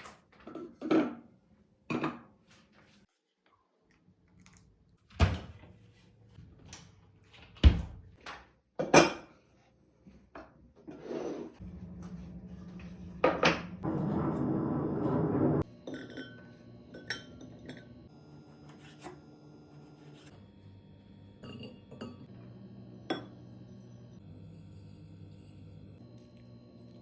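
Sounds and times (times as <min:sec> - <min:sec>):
dishes and utensils clattering: 0:08.8 - 0:09.4, 0:15.8 - 0:18.0, 0:21.4 - 0:22.3
low whirring: 0:11.6 - 0:15.6.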